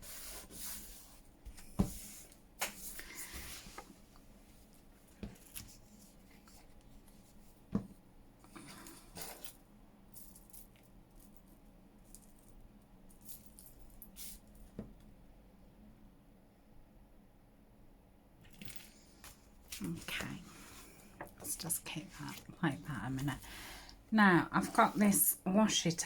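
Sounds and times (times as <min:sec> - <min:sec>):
paper rustling and sliding: 0:00.0 - 0:04.0.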